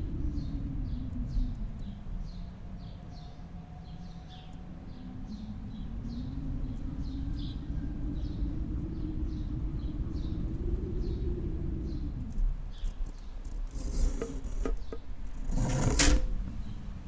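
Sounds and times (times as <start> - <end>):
wind rumbling and howling: 0.0 - 17.0.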